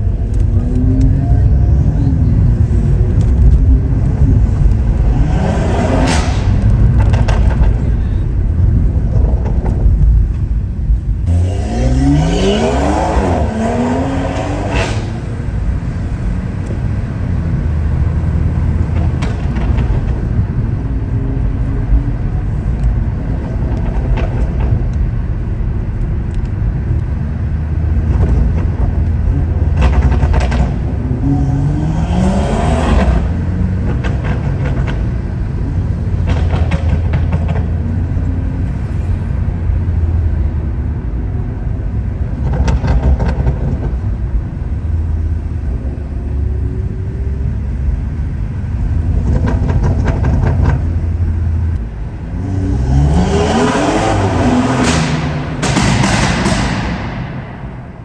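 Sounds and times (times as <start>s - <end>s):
car engine accelerating hard: 0.0s - 58.0s
exhaust cracks: 0.0s - 58.0s.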